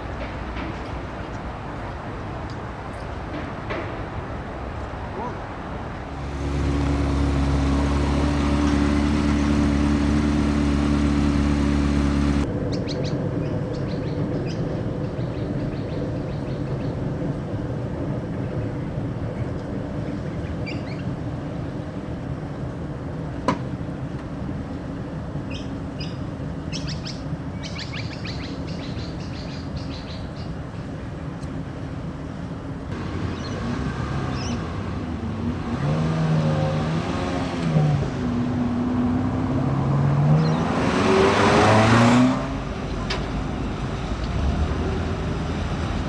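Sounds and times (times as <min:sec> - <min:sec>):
loud engine-like drone: 0:06.0 - 0:24.2, 0:31.6 - 0:46.0
quiet steady rumble: 0:11.8 - 0:35.8
birds chirping: 0:12.7 - 0:17.1, 0:18.3 - 0:21.2, 0:25.4 - 0:31.4, 0:33.0 - 0:34.8.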